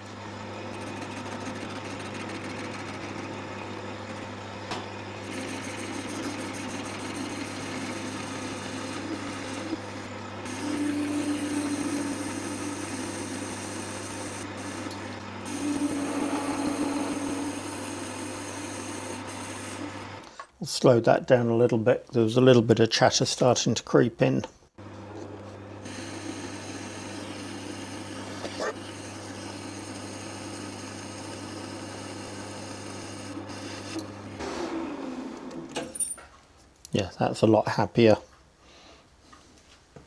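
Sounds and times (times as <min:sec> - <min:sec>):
lathe chatter humming tone: 0:00.0 - 0:20.3
metal lathe cutting: 0:00.4 - 0:20.3.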